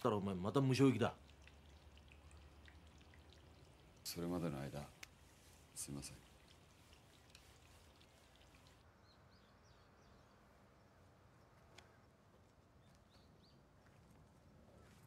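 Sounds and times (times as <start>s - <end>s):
soft bird chirps: 5.3s - 15.0s
faint click: 11.6s - 11.9s.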